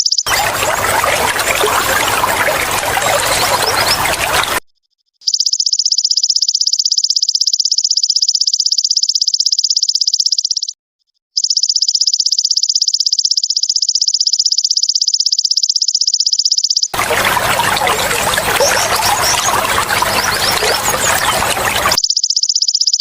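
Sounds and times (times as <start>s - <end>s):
trickling splashing water: 0.3s - 4.6s, 17.0s - 22.0s.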